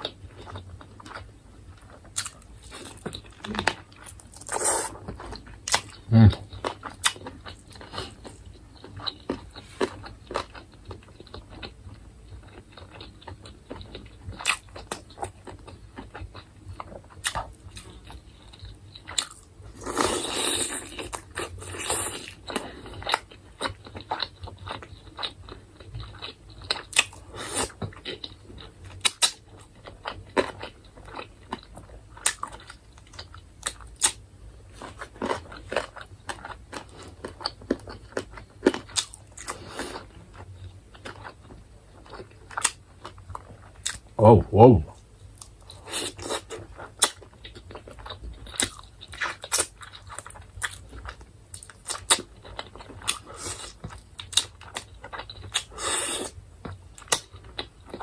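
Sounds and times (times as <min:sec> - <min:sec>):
chewing with crunches: 0:00.0 - 0:44.2, 0:44.9 - 0:58.0.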